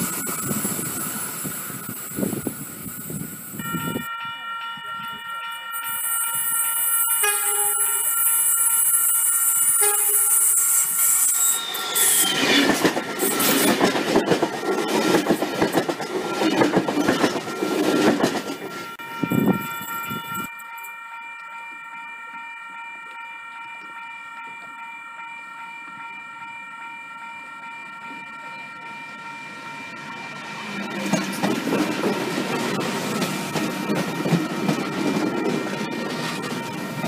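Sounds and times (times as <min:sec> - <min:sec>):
thin high tones: 0:00.0 - 0:13.8, 0:18.6 - 0:37.0
falling whine of passing train: 0:00.0 - 0:37.0
train wheels clattering: 0:11.7 - 0:19.6, 0:31.0 - 0:37.0.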